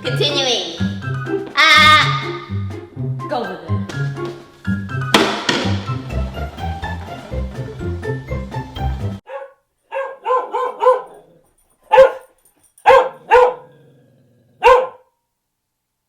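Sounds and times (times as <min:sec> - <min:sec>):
background music: 0:00.0 - 0:09.2
dog barking: 0:09.2 - 0:15.2.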